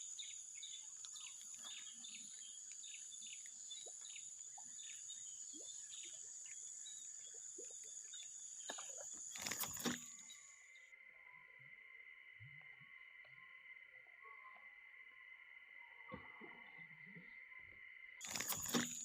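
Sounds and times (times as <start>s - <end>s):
insects droning: 0.0s - 19.0s
bird chirps: 17.6s - 19.0s.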